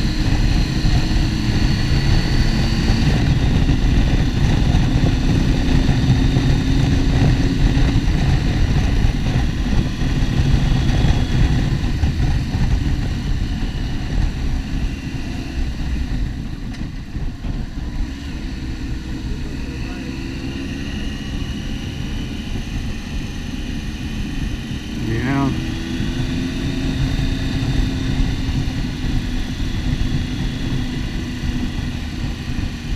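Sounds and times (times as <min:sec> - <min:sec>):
motorcycle engine running: 0:00.0 - 0:32.9
wind rush on microphone: 0:00.0 - 0:32.9.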